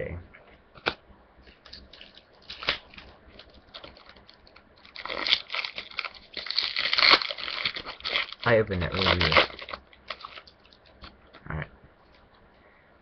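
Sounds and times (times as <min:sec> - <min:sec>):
foil wrapper crinkling and tearing: 0:01.5 - 0:11.1.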